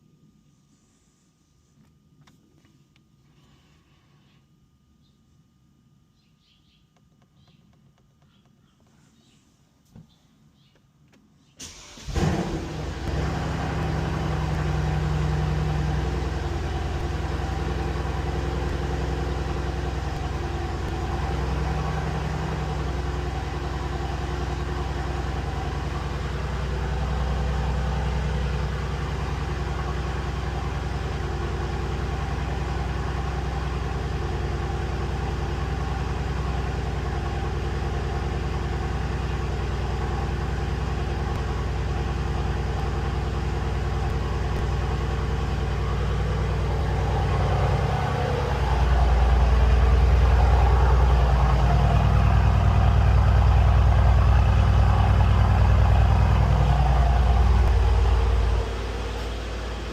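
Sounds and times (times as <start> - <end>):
car engine starting and idling: 11.6 - 59.9.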